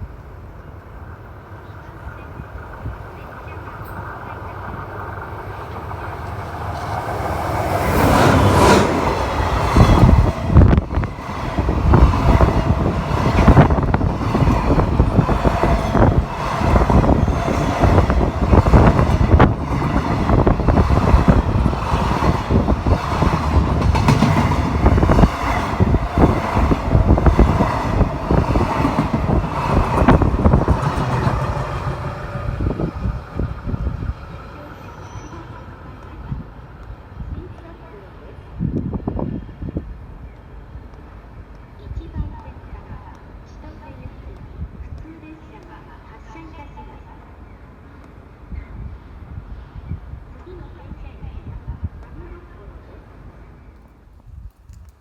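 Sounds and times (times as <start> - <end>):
train wheels clattering on rails: 3.8 - 36.2.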